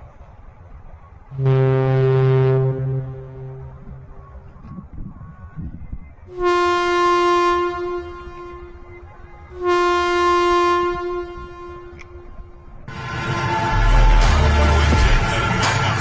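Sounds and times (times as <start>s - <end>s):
train horn blasts: 1.4s - 4.3s, 6.3s - 16.0s.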